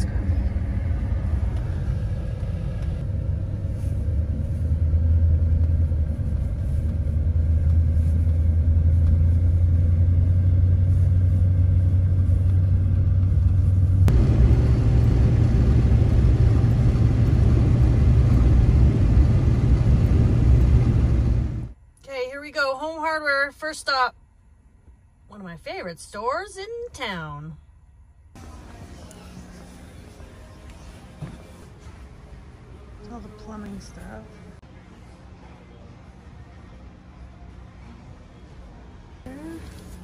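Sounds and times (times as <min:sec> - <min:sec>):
vehicle engine and road noise: 0:00.0 - 0:21.9, 0:28.4 - 0:40.0.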